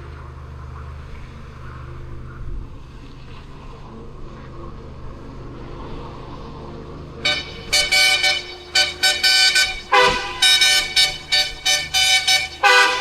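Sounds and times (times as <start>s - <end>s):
low engine hum: 0.0s - 13.0s
vehicle horn toots: 7.2s - 13.0s.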